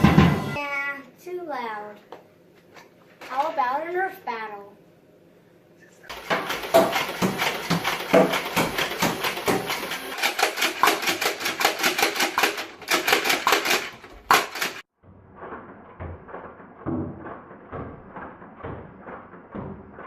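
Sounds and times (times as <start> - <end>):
toy blasters firing clacks: 6.6 - 14.9.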